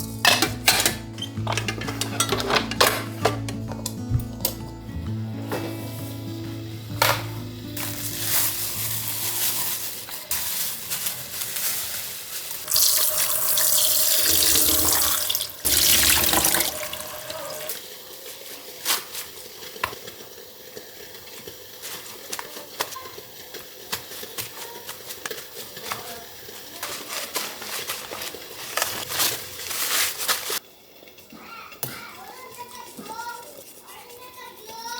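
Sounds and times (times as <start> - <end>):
tap running into a sink: 12.7 - 17.8.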